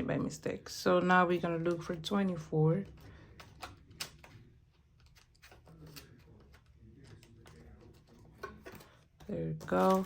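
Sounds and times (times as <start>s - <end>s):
paper envelopes rustling: 2.9s - 10.0s.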